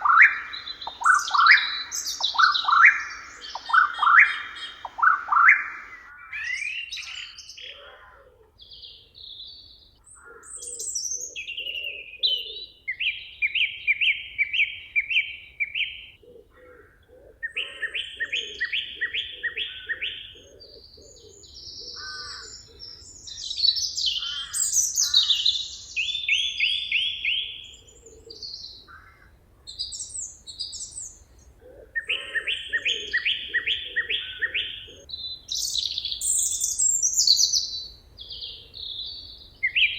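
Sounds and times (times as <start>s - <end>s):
bird chirps and calls: 0.0s - 8.0s, 17.4s - 29.1s, 32.0s - 39.9s
songbirds singing trills: 0.0s - 39.9s.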